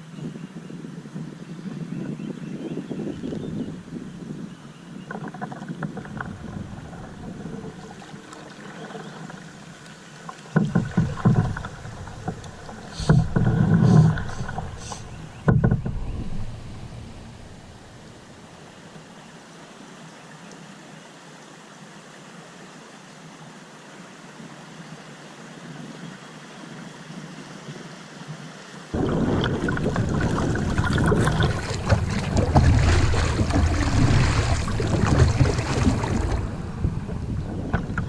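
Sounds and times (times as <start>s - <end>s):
rush of river water: 0.0s - 38.0s
loud low water rumble: 3.0s - 9.7s, 10.6s - 18.9s, 29.0s - 38.0s
water splashing: 5.1s - 18.8s, 29.0s - 38.0s.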